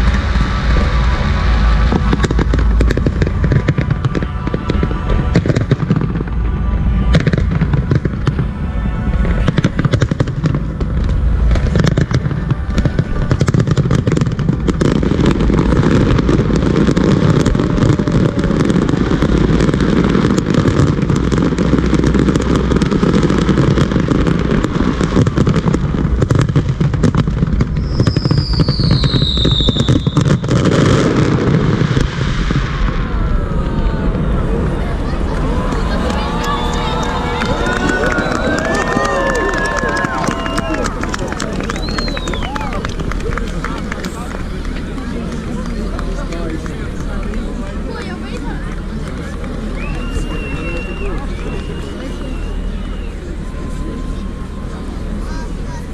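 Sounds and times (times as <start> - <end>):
falling firework whistle: 0.0 - 43.2, 49.6 - 55.9
fireworks bangs and crackling: 0.0 - 55.9.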